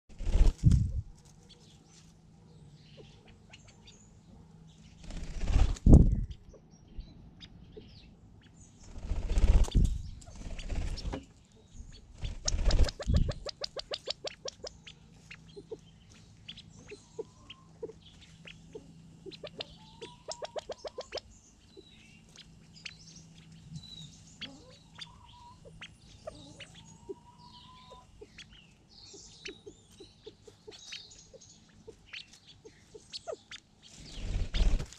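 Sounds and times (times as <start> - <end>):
quail wings whirring: 5.0 - 6.2, 12.2 - 13.4.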